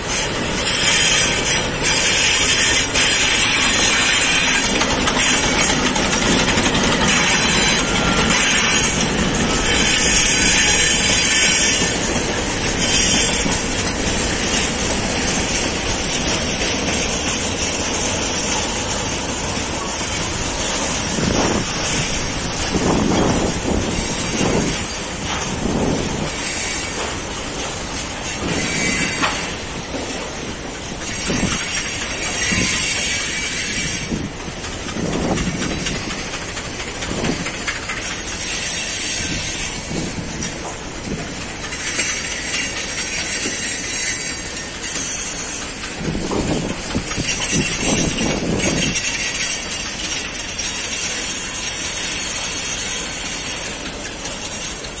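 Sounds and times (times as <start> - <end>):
freight train wheels knocking: 0.0 - 55.0
high-pitched wheel squeal: 28.3 - 29.5, 47.0 - 53.6.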